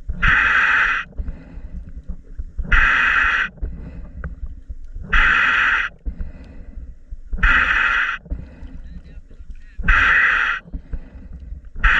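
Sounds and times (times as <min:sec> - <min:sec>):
low rumble: 0:00.0 - 0:11.9
scuba regulator breathing hiss: 0:07.4 - 0:08.2, 0:09.9 - 0:10.6.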